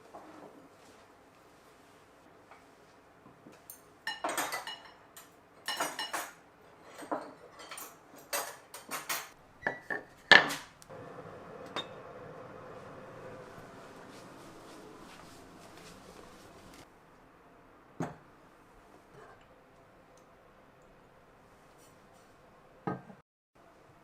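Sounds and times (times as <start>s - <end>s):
dishes and cutlery clattering: 3.6s - 10.7s, 11.6s - 16.8s
faint steady hum: 10.8s - 22.8s.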